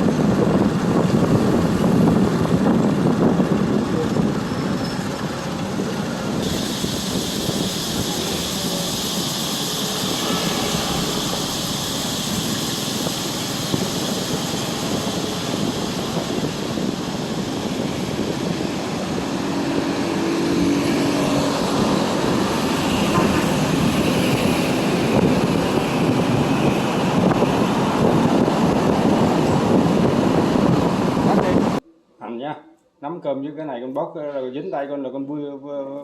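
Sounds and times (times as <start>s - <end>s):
wind buffeting microphone: 0.0s - 31.8s.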